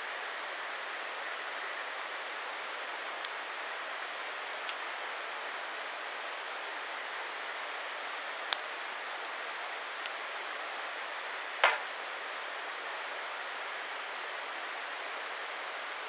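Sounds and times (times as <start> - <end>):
steady fire hiss: 0.7 - 16.0
burning wood popping: 2.6 - 12.4.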